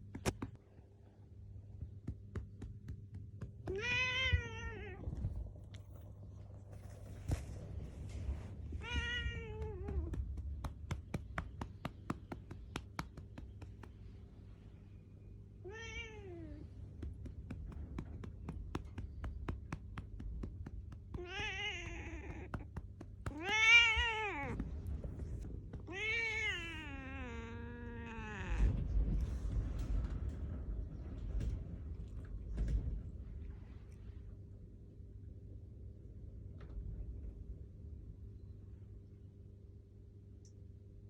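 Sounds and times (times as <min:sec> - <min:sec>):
light patting: 0:01.6 - 0:15.2, 0:16.6 - 0:34.2
cat meowing: 0:03.7 - 0:05.0, 0:08.8 - 0:10.2, 0:15.6 - 0:16.6, 0:21.1 - 0:24.6, 0:25.8 - 0:28.8.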